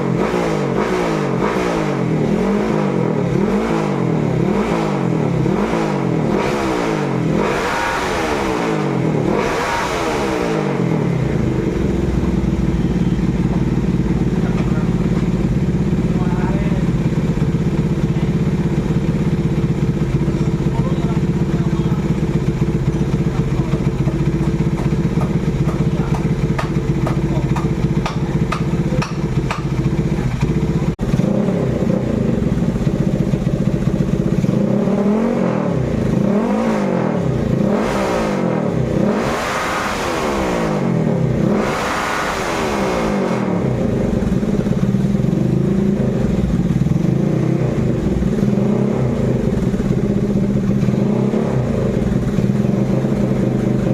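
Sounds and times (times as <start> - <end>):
motorcycle engine idling and revving: 0.0 - 53.9.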